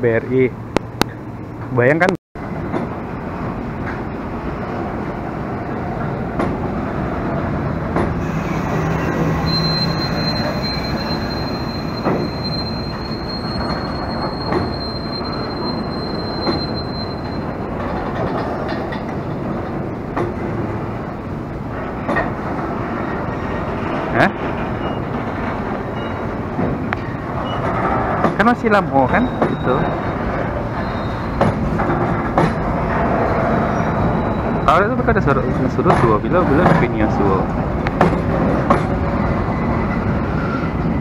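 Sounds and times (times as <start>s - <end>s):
train wheels rumbling on rail: 2.4s - 41.0s
high wheel squeal: 8.1s - 18.6s, 28.5s - 31.7s, 32.8s - 35.3s, 39.0s - 41.0s.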